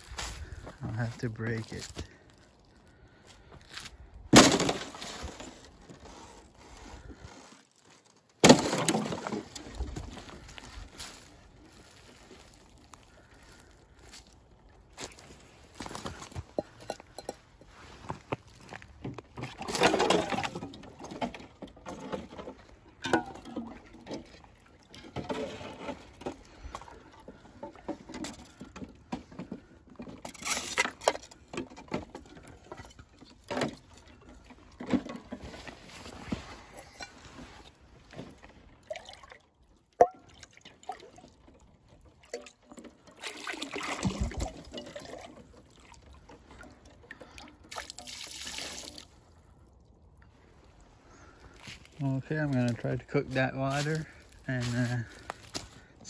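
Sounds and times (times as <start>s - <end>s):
handling noises: 3.7s - 38.8s
water pouring into a container: 42.7s - 46.2s, 47.1s - 49.2s.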